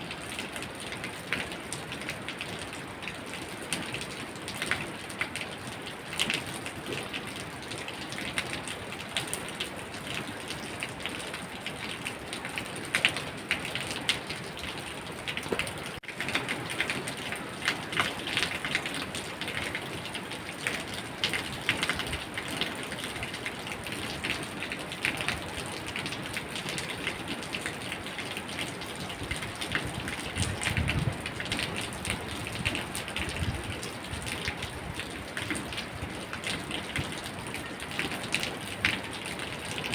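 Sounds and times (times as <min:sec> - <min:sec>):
steady rain falling: 0:00.0 - 0:39.9
raindrops ticking on hard surface: 0:00.1 - 0:39.9.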